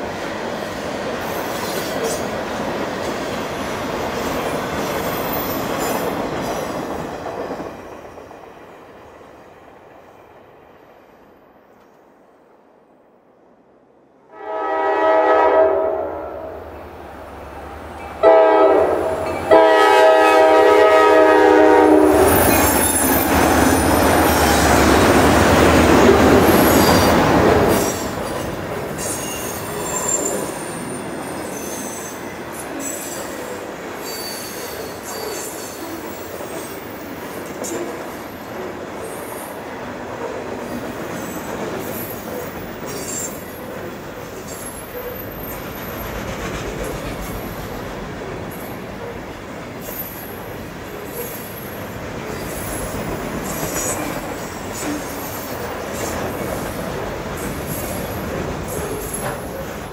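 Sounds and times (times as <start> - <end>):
train wheel squeal: 4.2 - 8.4, 22.1 - 24.8, 26.6 - 39.6, 40.6 - 47.6, 49.7 - 59.9
train horn blasts: 14.2 - 16.7, 18.2 - 22.6
locomotive passing loudly: 16.5 - 31.6
freight cars clickety-clack: 40.2 - 49.2, 51.1 - 59.9.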